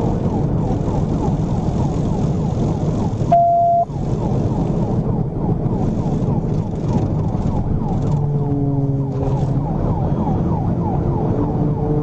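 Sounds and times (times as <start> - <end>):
car engine and road noise: 0.0 - 12.0
police siren yelping: 9.3 - 12.0.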